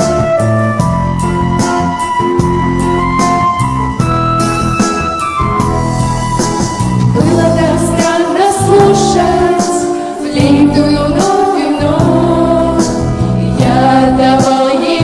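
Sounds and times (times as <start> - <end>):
pop backing track with beat: 0.0 - 15.0
voices singing together: 7.2 - 15.0.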